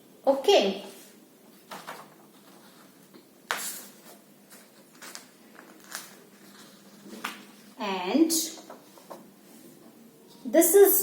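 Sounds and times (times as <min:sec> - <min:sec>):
faint clicks and rustles: 0:01.5 - 0:07.8.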